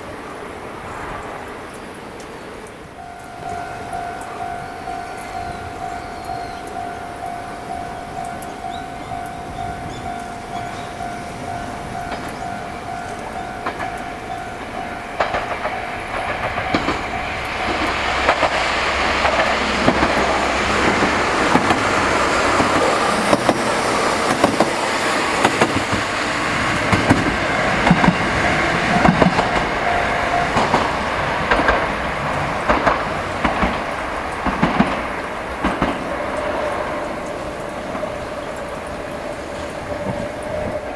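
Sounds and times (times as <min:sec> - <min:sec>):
train passing: 0:00.0 - 0:40.9
wheels clicking over rail joints: 0:01.6 - 0:40.9
steady high tone: 0:02.9 - 0:31.4.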